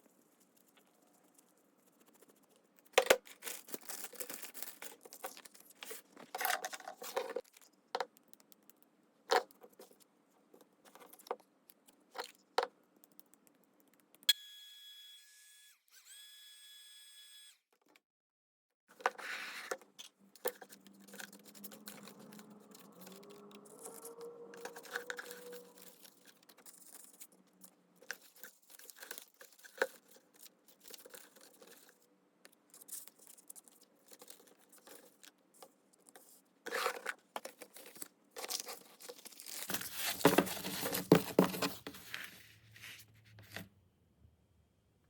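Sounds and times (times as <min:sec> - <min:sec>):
paper rustling: 0:02.9 - 0:07.8, 0:19.0 - 0:32.0, 0:36.1 - 0:43.7.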